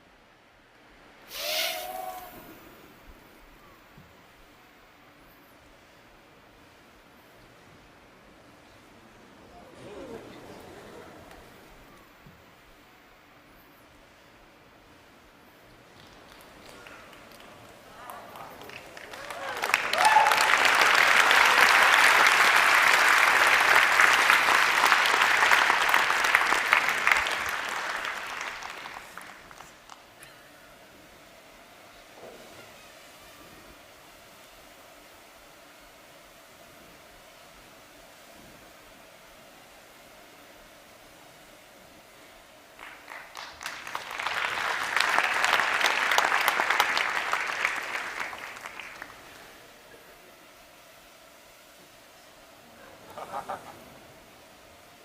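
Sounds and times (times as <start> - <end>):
audience applauding: 15.8 - 30.2, 42.7 - 49.8.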